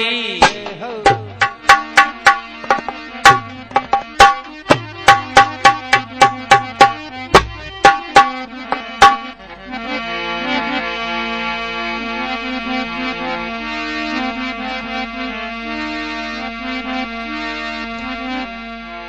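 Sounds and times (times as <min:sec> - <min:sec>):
fast hand drum strokes: 0:00.4 - 0:09.2
harmonium chord: 0:01.0 - 0:19.0.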